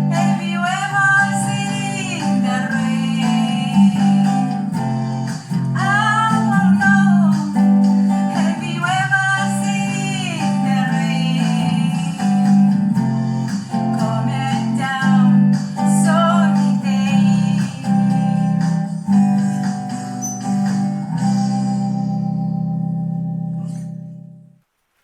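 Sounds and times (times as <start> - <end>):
person singing: 0.0 - 22.0
strummed guitar: 0.0 - 24.6.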